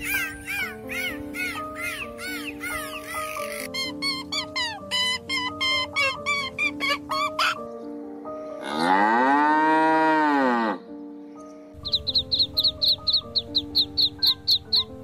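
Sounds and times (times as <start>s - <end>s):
chicken calls: 0.0s - 7.6s
background music: 0.0s - 15.0s
cow mooing: 8.6s - 10.8s.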